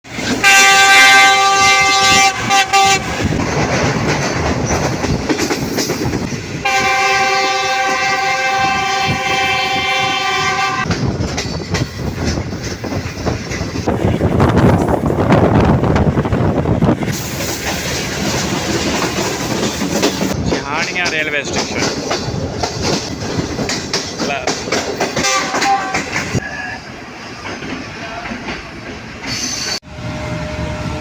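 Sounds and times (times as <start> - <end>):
train rumble and rail clatter: 0.1 - 31.0
locomotive air horn blasts: 0.3 - 3.3, 6.6 - 10.9, 25.2 - 26.8.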